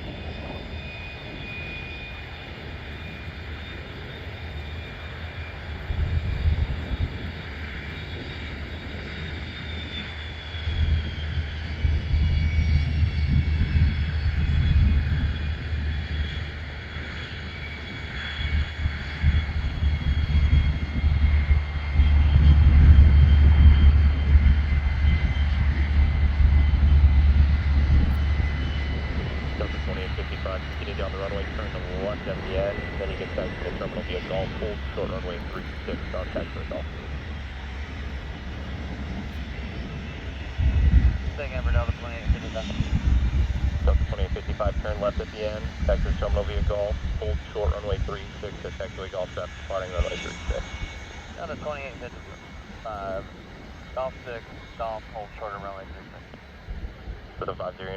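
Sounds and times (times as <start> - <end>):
gusty low rumble: 0.0 - 57.9
jet engine whine: 0.0 - 57.9.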